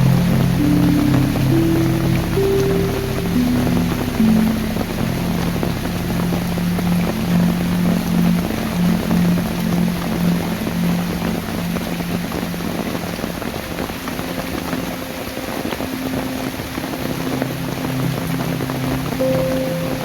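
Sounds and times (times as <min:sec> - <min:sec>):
faint background music: 0:00.0 - 0:20.0
rain falling: 0:00.0 - 0:20.0.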